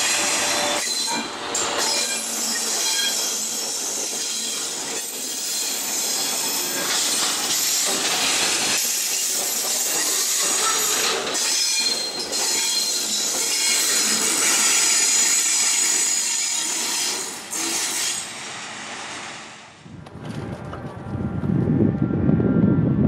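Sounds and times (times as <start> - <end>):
train wheel-on-rail noise: 0.0 - 23.0
high wheel squeal: 0.1 - 8.0, 8.8 - 18.4.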